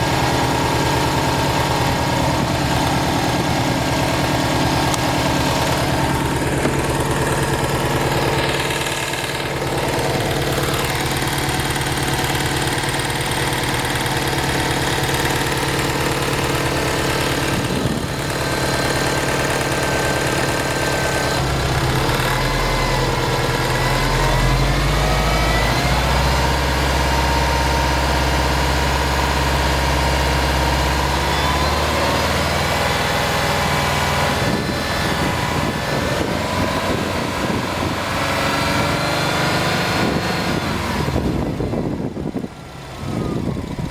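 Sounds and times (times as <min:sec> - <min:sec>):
car engine running: 0:00.0 - 0:43.9
engine ticking: 0:00.0 - 0:43.9.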